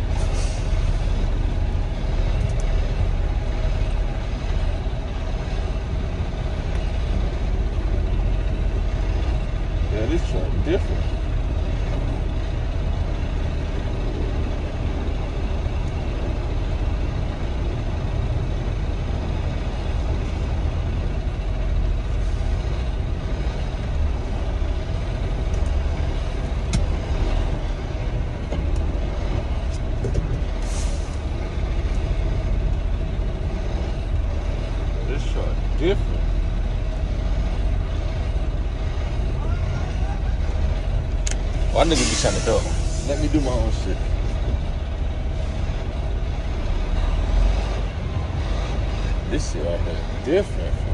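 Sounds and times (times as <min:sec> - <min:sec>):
diesel truck engine rumble: 0:00.0 - 0:50.9
air hiss: 0:41.9 - 0:43.5.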